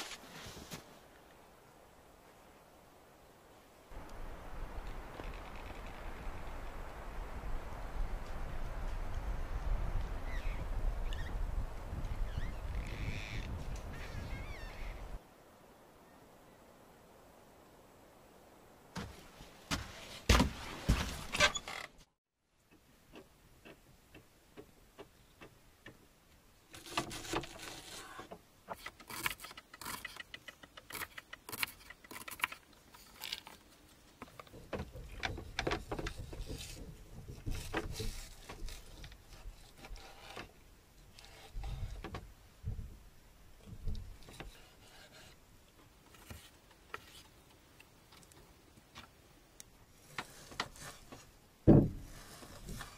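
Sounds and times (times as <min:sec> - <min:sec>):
loud knocks: 0:51.7 - 0:52.0.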